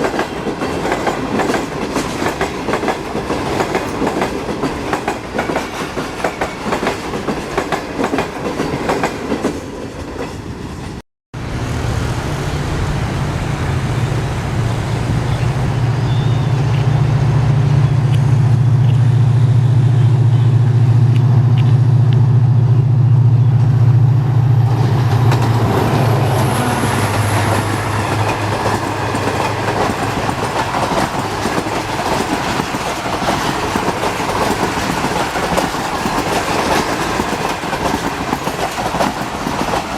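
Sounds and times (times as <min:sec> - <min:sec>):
train wheels clacking on rails: 0:00.0 - 0:10.5, 0:24.6 - 0:39.9
train rolling rumble: 0:00.0 - 0:39.9
diesel locomotive engine drone: 0:11.4 - 0:39.9.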